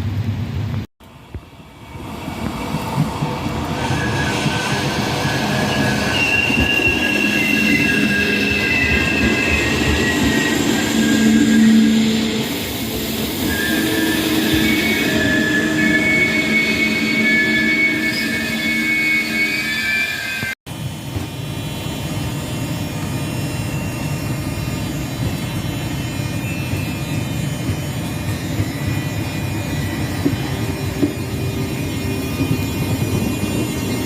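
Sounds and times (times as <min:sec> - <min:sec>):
train rumbling: 0:00.0 - 0:34.0
high metallic squeal: 0:03.4 - 0:20.6, 0:21.6 - 0:34.0.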